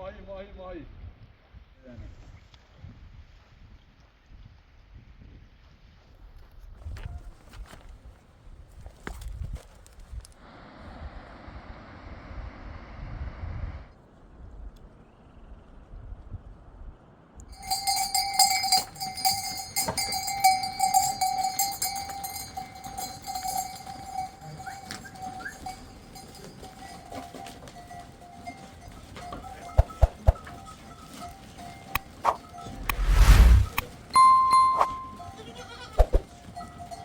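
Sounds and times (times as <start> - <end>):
livestock bells clanking: 17.5 - 32.8, 34.0 - 37.0.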